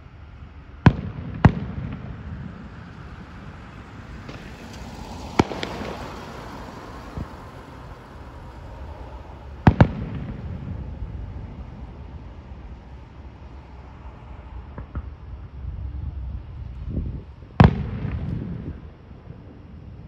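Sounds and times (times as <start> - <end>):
firework bang: 0.8 - 3.5, 4.2 - 7.4, 8.6 - 11.6, 17.6 - 18.9
firework cracks: 0.8 - 11.2
dull firework thump: 9.6 - 10.6, 14.7 - 15.2.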